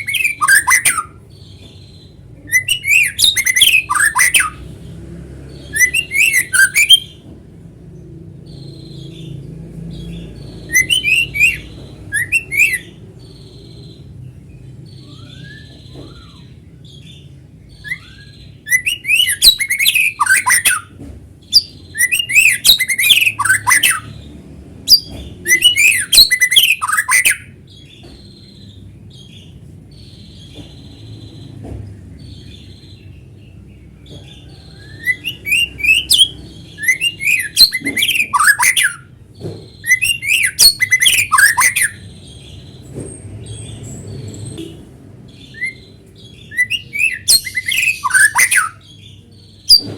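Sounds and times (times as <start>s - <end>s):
bird singing whistled phrases: 0.0s - 1.2s, 2.4s - 4.6s, 5.7s - 7.2s, 10.7s - 13.0s, 14.9s - 16.6s, 17.8s - 20.9s, 21.5s - 24.1s, 24.9s - 27.5s, 34.5s - 39.1s, 39.8s - 42.1s, 45.4s - 48.9s.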